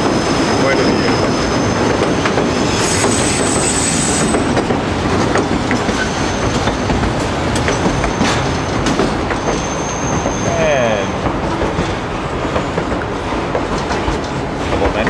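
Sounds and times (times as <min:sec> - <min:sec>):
rail joint clicks: 0:00.0 - 0:15.0
train wheels rumbling on rail: 0:00.0 - 0:15.0
high wheel squeal: 0:00.2 - 0:04.6, 0:05.8 - 0:07.0, 0:07.7 - 0:11.2.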